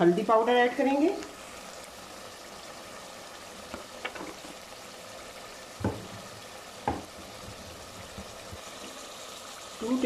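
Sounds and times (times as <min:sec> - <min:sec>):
food sizzling in a pot: 0:00.0 - 0:10.0
knocks: 0:05.8 - 0:06.2, 0:06.8 - 0:07.1.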